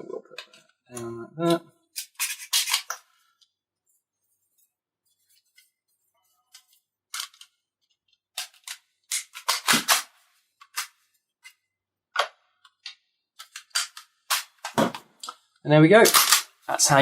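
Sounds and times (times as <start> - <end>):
pistol parts clicking and clacking: 2.0 - 3.0, 8.4 - 11.0, 12.2 - 14.8, 16.0 - 16.6.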